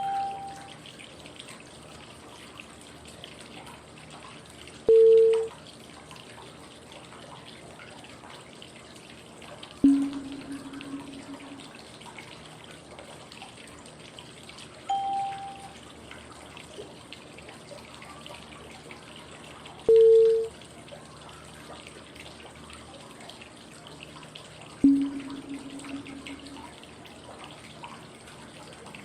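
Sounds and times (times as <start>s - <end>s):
pure cue tones: 0.0s - 0.7s, 4.9s - 5.5s, 9.8s - 11.8s, 14.9s - 15.8s, 19.9s - 20.5s, 24.8s - 26.8s
running water white noise: 0.0s - 29.0s.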